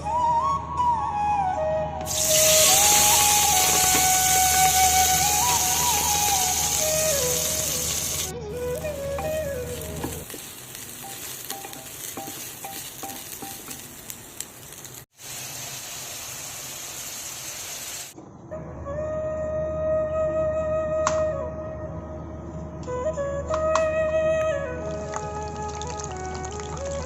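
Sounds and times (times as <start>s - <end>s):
flute music: 0.0s - 10.3s, 18.5s - 27.0s
food frying in hot oil: 2.1s - 8.3s, 8.9s - 18.2s, 25.0s - 27.0s.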